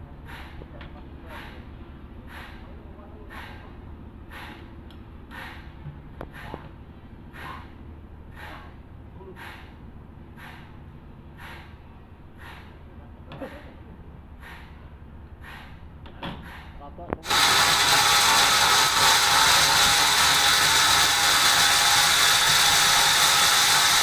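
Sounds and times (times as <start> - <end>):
sawmill machinery humming: 17.2 - 24.0.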